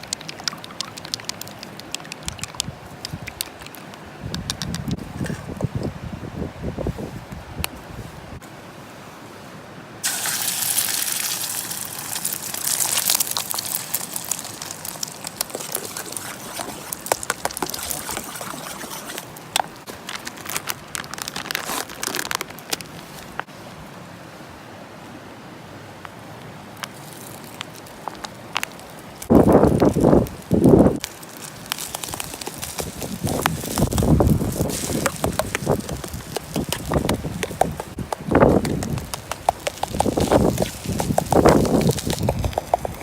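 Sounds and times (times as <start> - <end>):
stirring clicks and crackles: 0.0 - 5.6, 11.2 - 23.5, 26.8 - 43.0
food sizzling in a skillet: 10.0 - 15.0.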